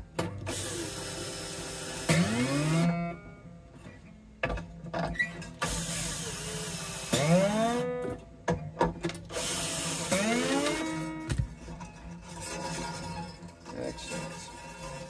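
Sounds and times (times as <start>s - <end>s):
drill whirring: 0.4s - 3.2s, 5.6s - 8.1s, 9.3s - 11.2s
guitar string ringing: 2.1s - 5.6s, 10.1s - 15.0s.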